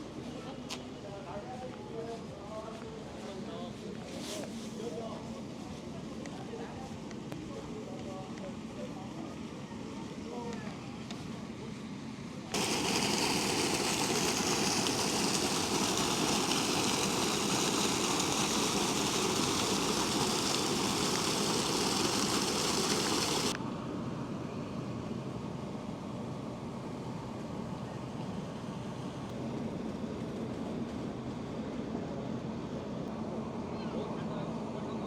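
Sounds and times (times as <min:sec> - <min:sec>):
train rushing noise: 0:12.6 - 0:23.5.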